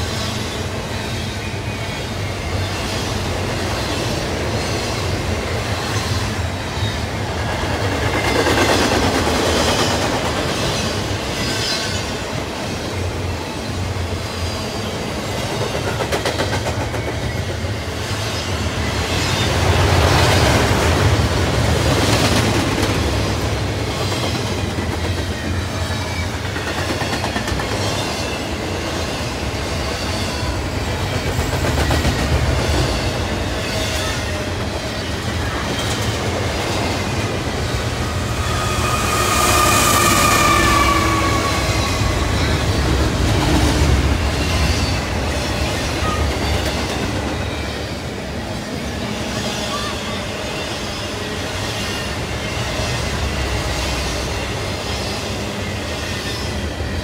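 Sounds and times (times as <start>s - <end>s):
train wheels rumbling on rails: 0.0s - 57.0s
high wheel squeal: 36.9s - 43.3s.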